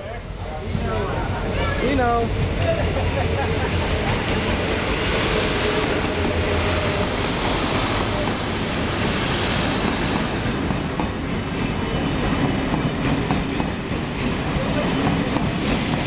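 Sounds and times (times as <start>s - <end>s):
train cars rumbling past: 0.0s - 16.0s.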